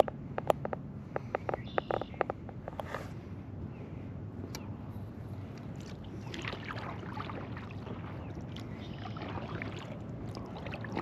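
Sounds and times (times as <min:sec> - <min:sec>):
paddle dipping in water: 0:05.6 - 0:11.0
water splashes and drips: 0:05.6 - 0:11.0.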